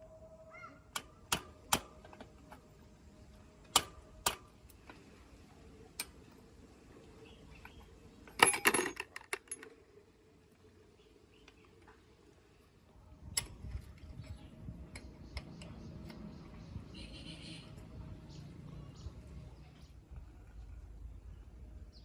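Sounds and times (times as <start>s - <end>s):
metallic clicks and taps: 3.7s - 5.0s, 14.8s - 16.3s
small metal parts rattling: 7.6s - 9.8s.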